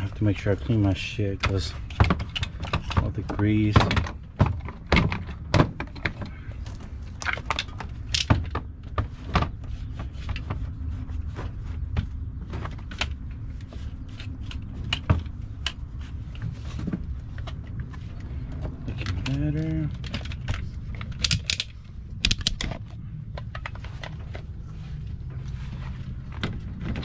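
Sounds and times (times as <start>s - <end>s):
low hum: 9.6s - 27.0s.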